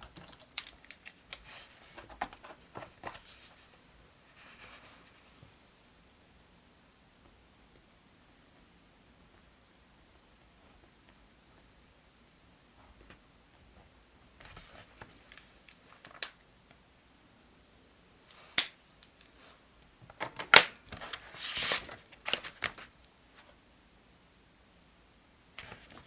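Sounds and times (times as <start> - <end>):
paper or plastic rustling: 0.0 - 5.5, 20.5 - 22.9.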